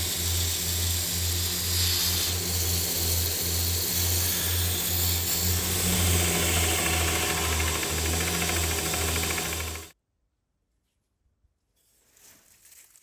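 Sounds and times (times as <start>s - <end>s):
grinding hiss: 0.0s - 9.9s
power tool motor hum: 0.0s - 10.0s.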